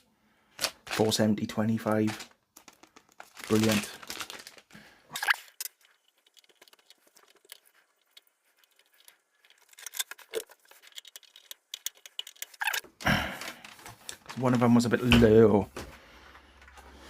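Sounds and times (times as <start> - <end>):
packaging rustling: 0.5 - 15.0
small electronic parts clicking: 5.2 - 12.9.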